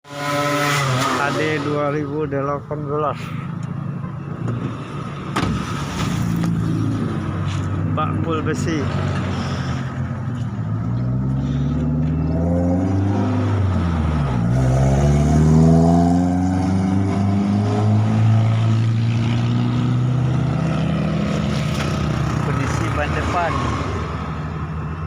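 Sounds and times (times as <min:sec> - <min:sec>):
diesel engine revving: 0:05.6 - 0:24.7.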